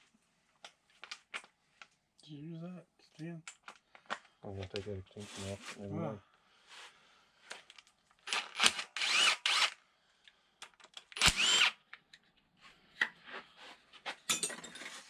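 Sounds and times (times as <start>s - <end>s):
cordless power tool spinning: 8.2s - 9.8s, 11.2s - 11.8s.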